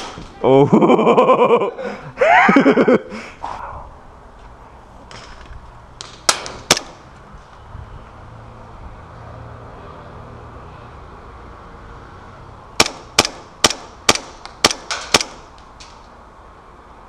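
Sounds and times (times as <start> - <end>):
person crying out: 0.4 - 2.6
airsoft gun shots: 6.0 - 7.0, 12.8 - 15.5.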